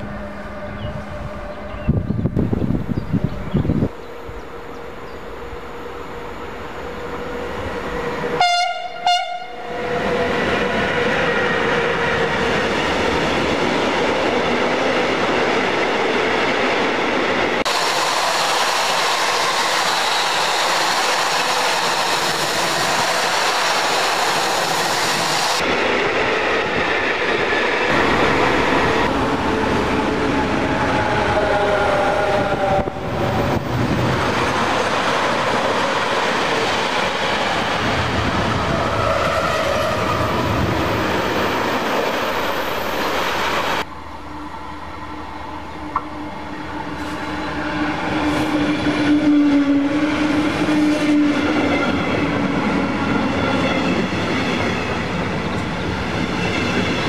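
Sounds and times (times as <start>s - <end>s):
train rumbling past: 0.0s - 57.0s
locomotive horn blasts: 8.4s - 9.8s.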